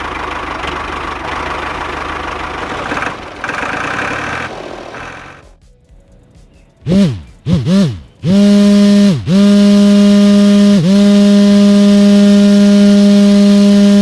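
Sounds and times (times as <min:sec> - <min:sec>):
small electric motor humming: 0:06.9 - 0:14.0.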